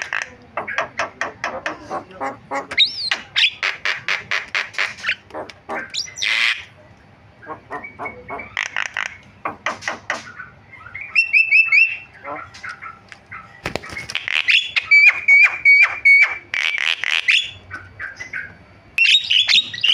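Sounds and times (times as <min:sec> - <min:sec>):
bird rasping squawk: 0:00.0 - 0:06.7, 0:07.4 - 0:19.9
myna chattering song: 0:00.0 - 0:16.4.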